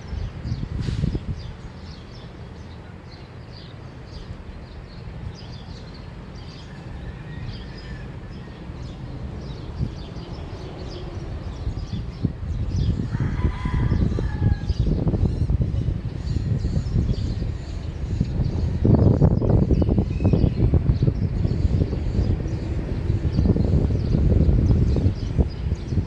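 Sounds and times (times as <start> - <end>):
low outdoor rumble: 3.9 - 26.0
small birds chirping: 7.5 - 26.0.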